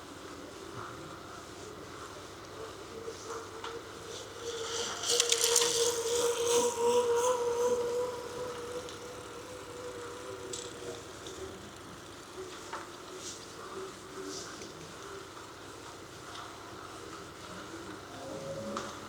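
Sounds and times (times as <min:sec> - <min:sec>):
passing motor vehicle hum: 0:04.0 - 0:11.7
bicycle clicks and rattles: 0:04.6 - 0:06.6, 0:08.4 - 0:12.6.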